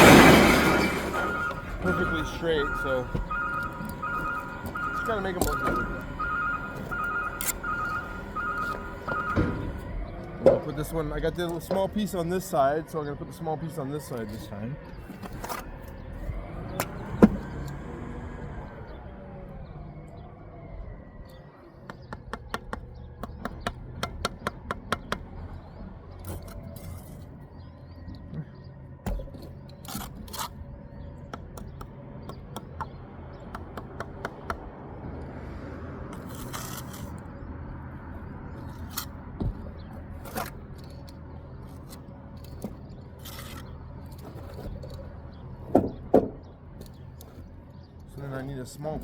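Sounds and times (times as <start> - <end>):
trowel scraping mortar: 36.1 - 37.2, 43.2 - 43.7.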